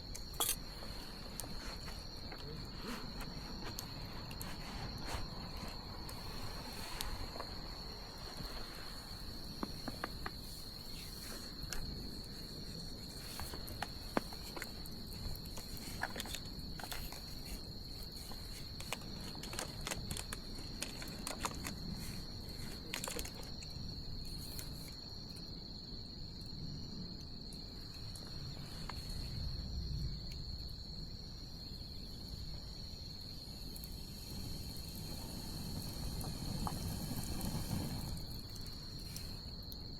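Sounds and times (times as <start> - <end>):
bonfire crackling and popping: 0.0 - 25.4, 29.3 - 39.9
high insect trill: 0.0 - 39.9
low rumbling hiss: 27.7 - 39.5.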